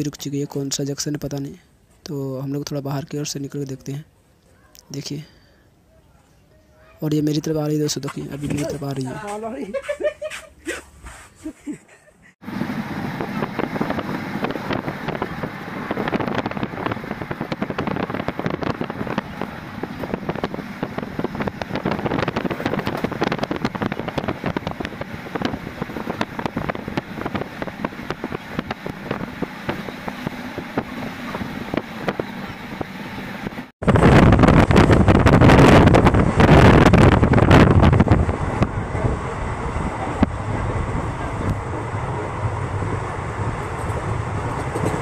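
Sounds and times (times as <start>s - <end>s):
train rattling and clattering: 12.4s - 45.0s
wind on microphone: 12.4s - 45.0s.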